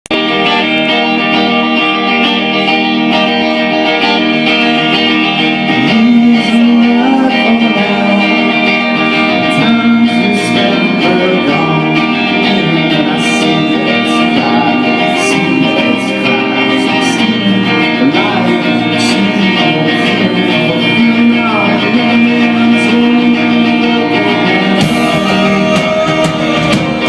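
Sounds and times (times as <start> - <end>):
distorted electric guitar chords: 0.0 - 27.0
rock band playing live: 0.1 - 27.0.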